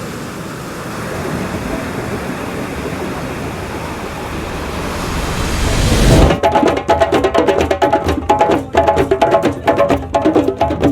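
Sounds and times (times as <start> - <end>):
waves breaking: 0.0 - 7.2.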